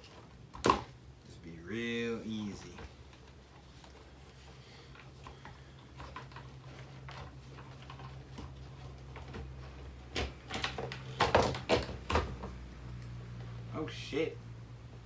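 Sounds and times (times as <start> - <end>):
clicks and knocks of parts: 4.9 - 13.2.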